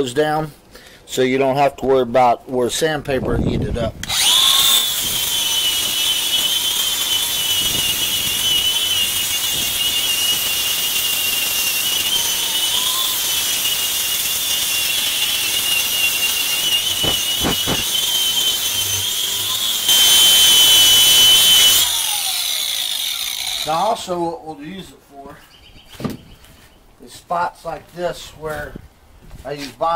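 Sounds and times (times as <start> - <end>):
angle grinder sanding wood: 4.0 - 24.2.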